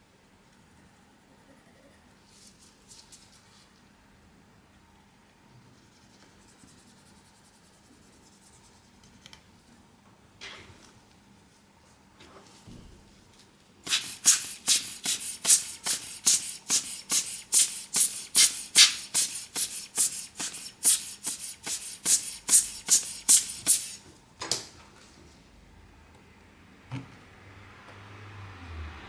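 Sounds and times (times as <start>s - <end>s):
hand tool scraping: 13.9s - 24.0s.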